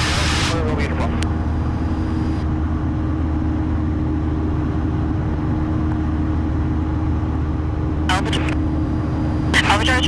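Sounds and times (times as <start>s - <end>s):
propeller plane engine droning: 0.0s - 10.0s.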